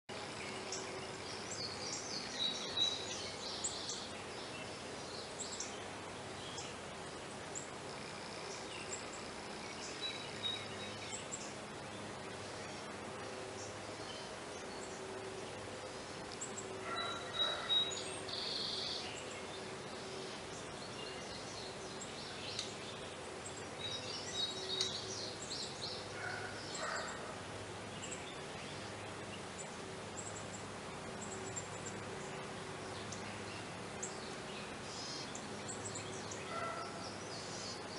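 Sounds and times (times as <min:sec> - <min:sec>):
steady low hum: 0:00.1 - 0:37.9
bird chirps: 0:16.4 - 0:19.4, 0:21.0 - 0:27.3.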